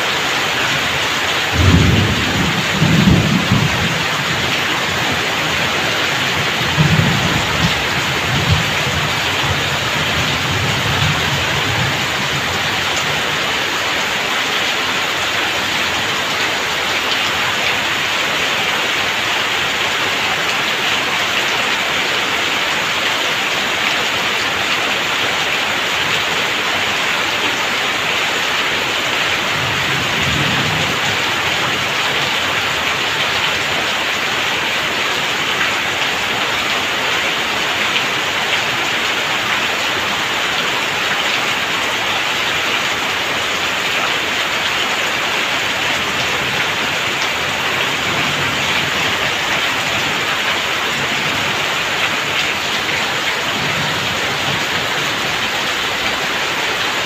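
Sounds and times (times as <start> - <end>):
heavy rain splashing: 0.0 - 57.0
thunder rumbling: 1.5 - 13.4, 29.5 - 32.9.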